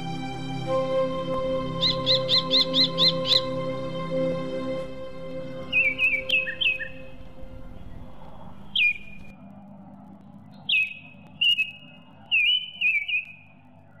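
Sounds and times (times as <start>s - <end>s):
faint low background noise: 0.0s - 14.0s
whistled bird chirps: 1.7s - 3.6s, 5.6s - 9.4s, 10.6s - 14.0s.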